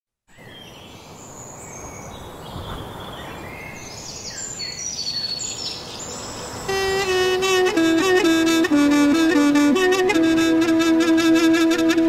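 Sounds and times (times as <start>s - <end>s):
steady background hiss: 0.3s - 12.0s
birds chirping and whistling: 1.7s - 7.0s.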